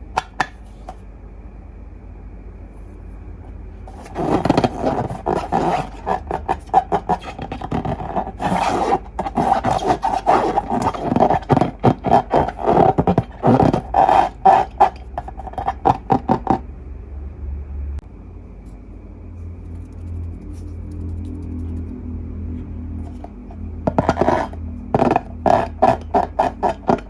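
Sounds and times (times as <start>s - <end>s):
balloons squeaking: 3.9s - 16.2s.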